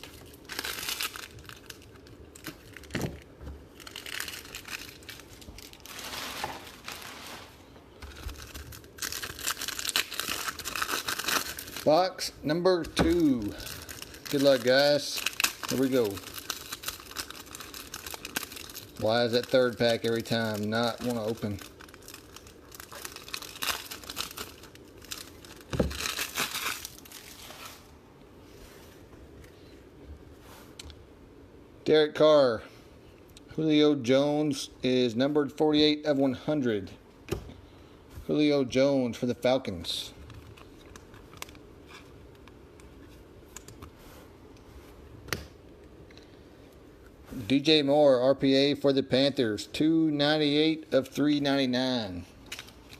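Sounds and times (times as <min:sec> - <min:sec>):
plastic wrapper crinkling and tearing: 0:00.0 - 0:27.9, 0:39.7 - 0:43.9, 0:52.4 - 0:52.9
trading cards rustling: 0:00.0 - 0:27.9.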